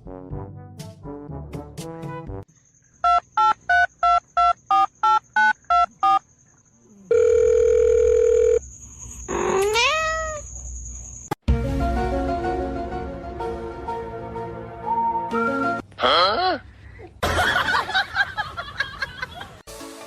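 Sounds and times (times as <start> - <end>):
steady dial tone: 7.0 - 8.6.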